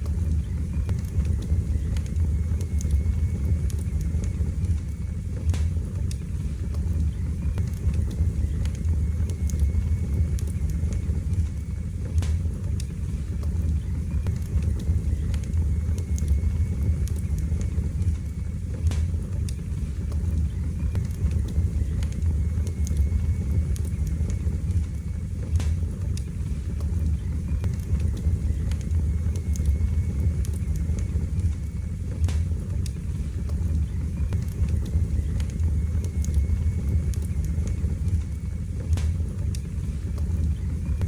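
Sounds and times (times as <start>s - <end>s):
fire crackling and popping: 0.0s - 41.0s
fire flames rumbling: 0.0s - 41.0s
sharp wood snaps: 25.5s - 29.8s, 30.4s - 40.3s.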